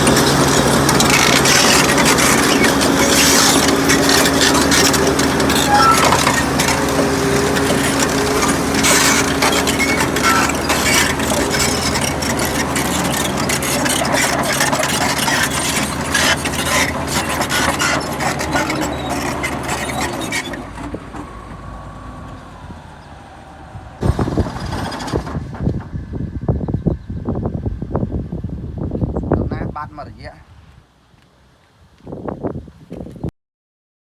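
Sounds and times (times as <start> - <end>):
metal clanks and knocks: 0.0 - 21.6
heavy diesel machine engine: 0.0 - 28.8.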